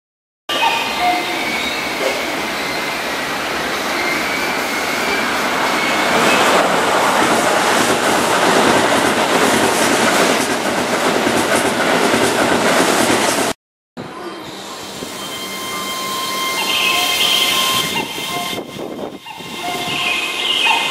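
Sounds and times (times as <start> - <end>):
electric train running past: 0.5 - 20.9.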